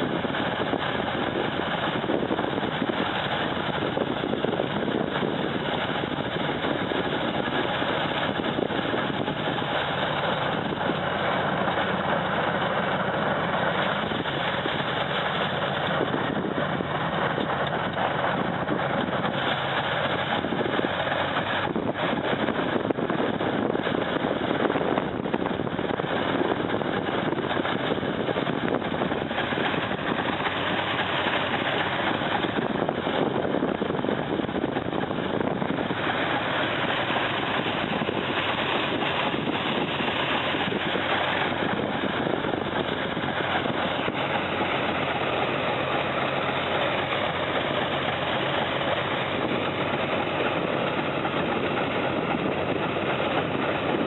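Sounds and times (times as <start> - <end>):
even rushing noise: 0.0 - 54.0
heavy machine engine running: 0.0 - 54.0.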